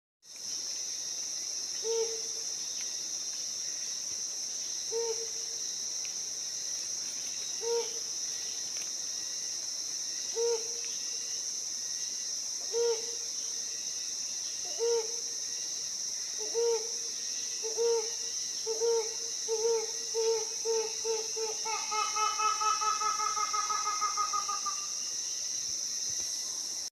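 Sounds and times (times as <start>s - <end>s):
high-pitched insect drone: 0.4s - 26.9s
hornbill hooting call: 18.7s - 24.9s.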